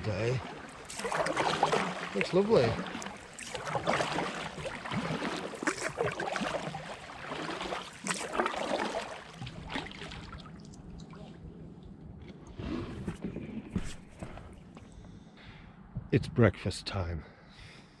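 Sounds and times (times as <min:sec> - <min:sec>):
paddle strokes splashing water: 0:00.0 - 0:11.4, 0:12.5 - 0:14.7.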